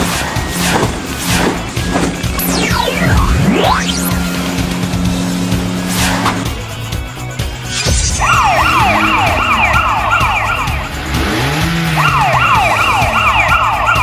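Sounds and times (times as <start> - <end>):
police siren yelping: 2.3 - 4.5, 7.9 - 14.0.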